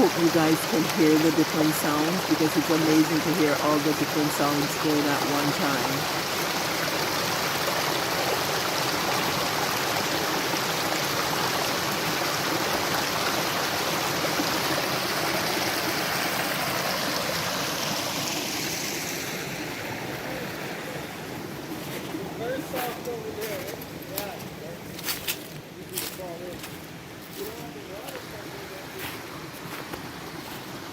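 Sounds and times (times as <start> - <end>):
stream splashing over rocks: 0.0 - 30.9.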